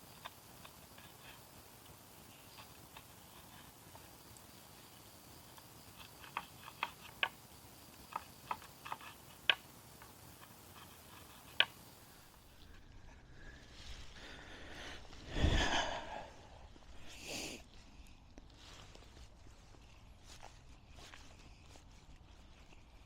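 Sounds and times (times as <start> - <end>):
campfire crackling and popping: 0.0 - 12.8.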